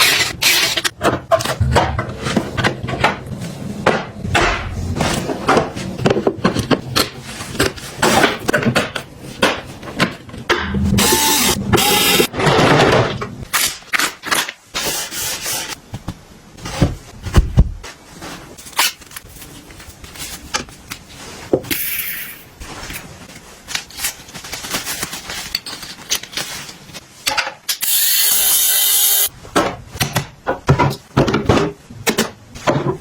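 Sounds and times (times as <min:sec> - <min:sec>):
hands handling objects: 0:22.6 - 0:27.3.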